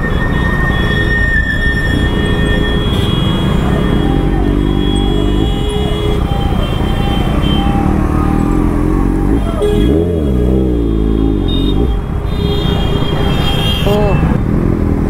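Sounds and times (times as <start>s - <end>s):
motorcycle engine running: 2.4s - 12.0s.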